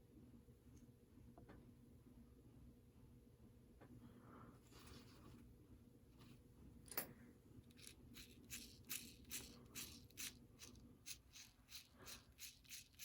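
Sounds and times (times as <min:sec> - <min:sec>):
scratchy rubbing strokes: 0:07.8 - 0:13.0.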